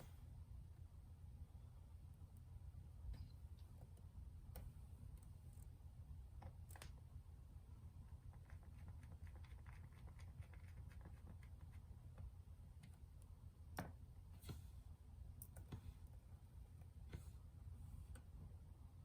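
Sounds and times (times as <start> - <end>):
small clicks and taps: 6.4 - 7.0.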